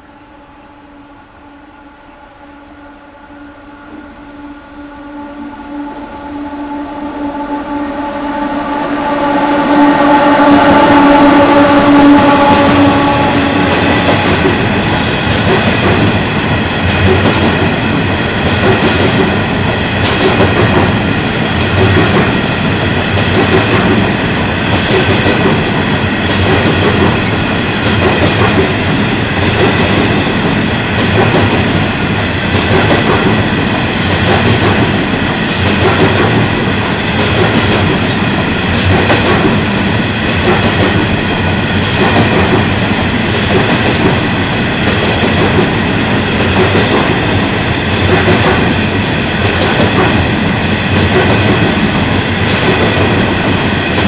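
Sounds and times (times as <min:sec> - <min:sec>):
train wheels rumbling on rails: 0:05.2 - 0:54.0
clickety-clack over rail joints: 0:12.2 - 0:54.0.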